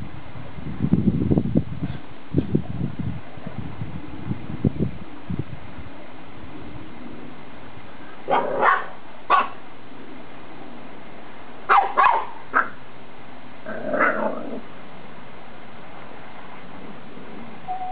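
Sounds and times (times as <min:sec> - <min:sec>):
puppy barking: 0:08.3 - 0:09.6, 0:11.7 - 0:12.8.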